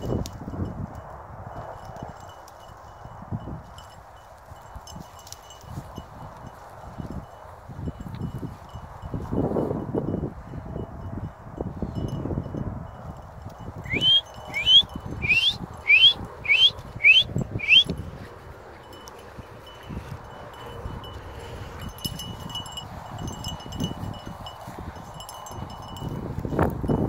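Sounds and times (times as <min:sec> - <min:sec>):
faint high tinkling: 0:00.0 - 0:18.2, 0:18.8 - 0:27.0
bird whistling rising notes: 0:13.8 - 0:17.9.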